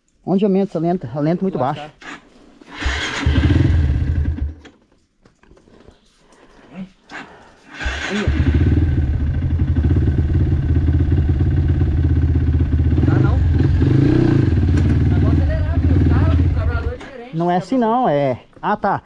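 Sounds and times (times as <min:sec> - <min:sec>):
dirt bike engine starting and idling: 0:02.0 - 0:04.8, 0:07.1 - 0:17.3.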